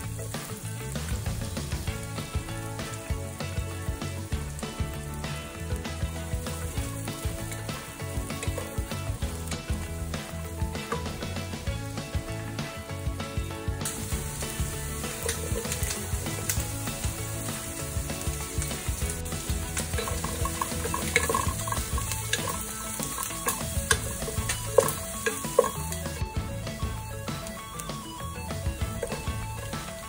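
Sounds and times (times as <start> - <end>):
background music: 0.0 - 30.0
onion sizzling in hot oil: 0.0 - 30.0
wooden spatula clicking on pan: 5.7 - 9.8, 10.8 - 11.3, 13.9 - 26.2.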